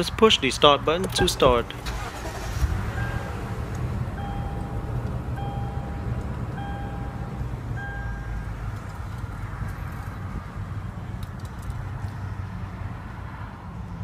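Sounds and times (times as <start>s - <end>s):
car engine idling: 0.2s - 11.8s
dashboard warning chime beeping: 2.9s - 3.5s, 4.1s - 8.6s.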